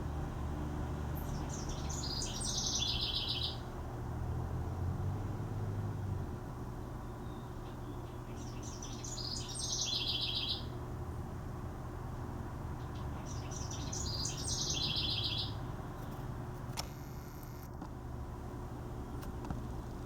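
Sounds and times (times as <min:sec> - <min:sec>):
songbird singing with trill: 0:01.1 - 0:03.7, 0:07.0 - 0:10.8, 0:12.8 - 0:15.7.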